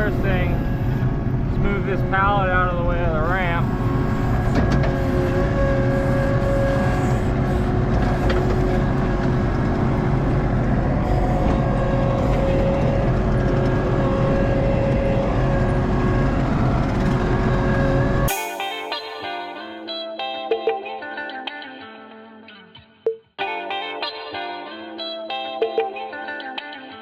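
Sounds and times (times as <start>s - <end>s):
diesel engine running: 0.0s - 18.3s
high whine: 0.0s - 20.0s.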